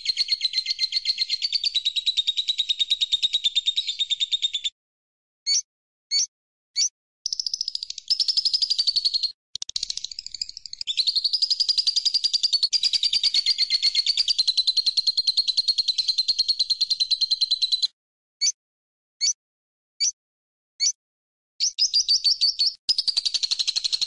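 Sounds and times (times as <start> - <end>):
songbird fast rattling trill: 7.3 - 17.8.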